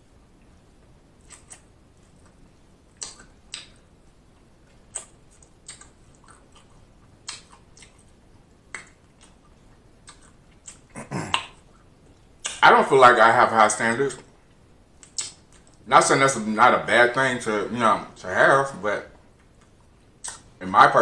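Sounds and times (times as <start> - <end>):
wet mouth clicks: 1.2 - 2.4, 3.0 - 3.8, 4.9 - 8.1, 8.7 - 12.6, 15.0 - 15.8, 19.5 - 20.5
lip smacks: 1.2 - 3.9, 4.6 - 12.6, 15.0 - 15.8, 19.4 - 20.6.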